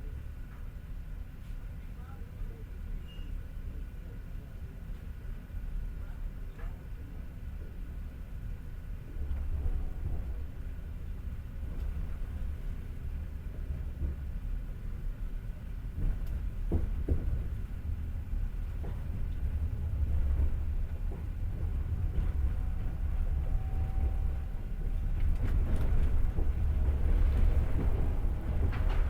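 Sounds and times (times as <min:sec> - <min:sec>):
train wheels rumbling on rails: 0:03.7 - 0:29.0
train wheels clicking and knocking: 0:15.6 - 0:29.0.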